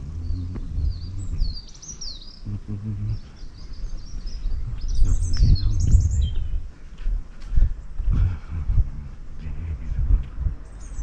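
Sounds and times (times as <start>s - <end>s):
low uneven rumble: 0.0s - 11.0s
small birds chirping: 0.0s - 11.0s.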